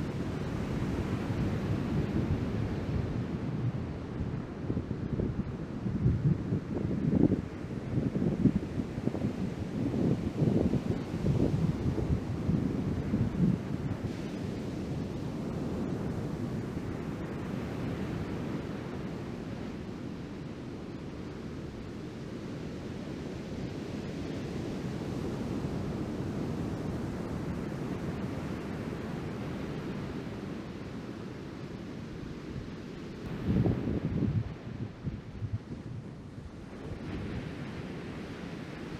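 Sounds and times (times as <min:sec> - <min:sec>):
wind on microphone: 0:00.0 - 0:38.9
ocean surf washing: 0:23.8 - 0:38.9.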